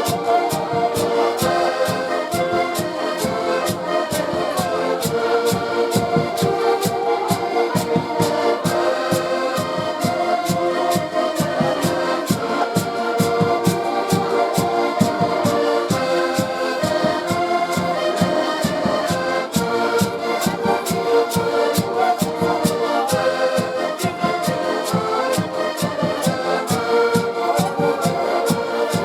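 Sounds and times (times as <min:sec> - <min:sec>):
band music with steady beat: 0:00.0 - 0:29.0.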